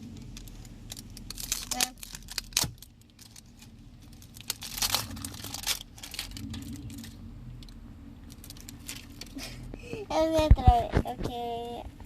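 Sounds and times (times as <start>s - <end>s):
packaging crinkling and rustling: 0.1s - 9.7s.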